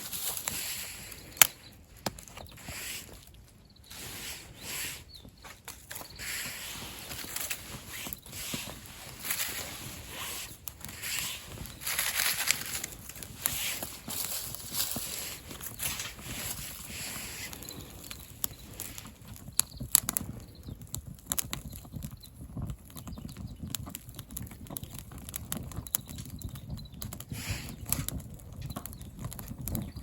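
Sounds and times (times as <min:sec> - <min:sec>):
fire hissing: 0:00.0 - 0:20.7, 0:27.2 - 0:29.3
campfire crackling: 0:00.0 - 0:30.0
sharp pops of fire: 0:00.0 - 0:30.0.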